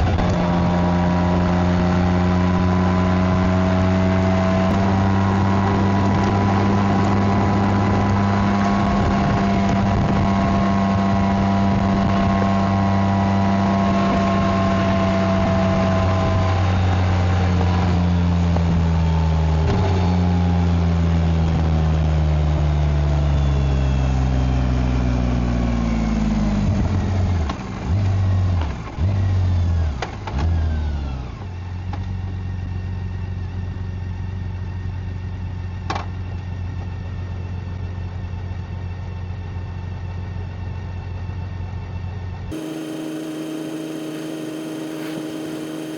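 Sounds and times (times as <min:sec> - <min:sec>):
motorcycle engine and exhaust: 0:00.0 - 0:35.8, 0:36.6 - 0:45.9
throttle bursts: 0:42.5 - 0:45.9.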